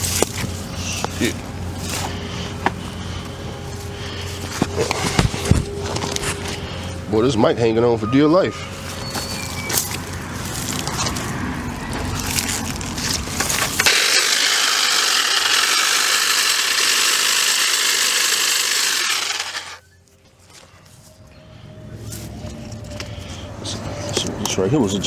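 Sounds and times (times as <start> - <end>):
rustling and clatter: 0.0 - 7.0
cordless power tool cutting: 13.4 - 19.8.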